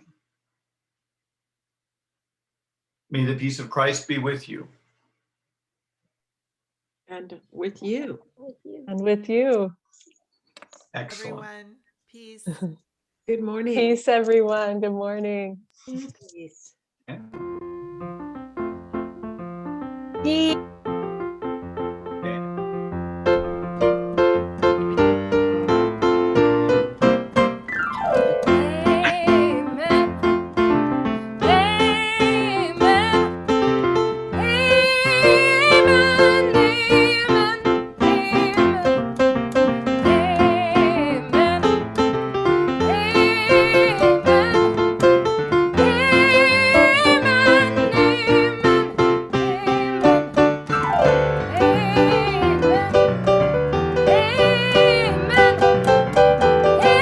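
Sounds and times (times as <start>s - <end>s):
piano playing slow piece: 17.2s - 57.0s
held melody with vibrato: 27.8s - 57.0s.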